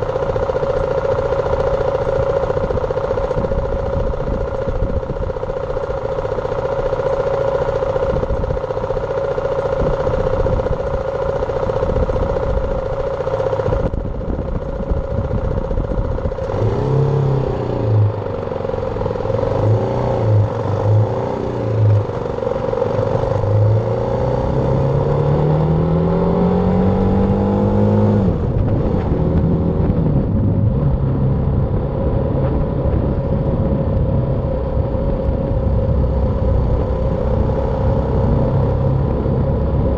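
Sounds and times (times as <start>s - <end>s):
motorcycle engine: 0.0s - 39.9s
wind rush: 28.3s - 39.9s.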